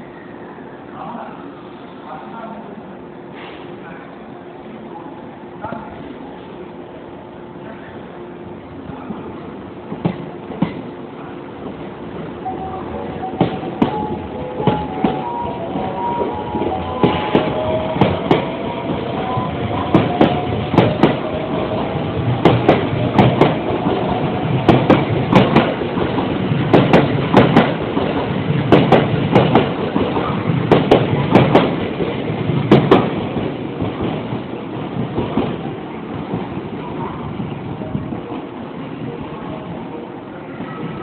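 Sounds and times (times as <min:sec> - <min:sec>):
train rumbling: 0:00.0 - 0:41.0
train wheels clacking on rail joints: 0:13.2 - 0:21.4, 0:22.4 - 0:36.6.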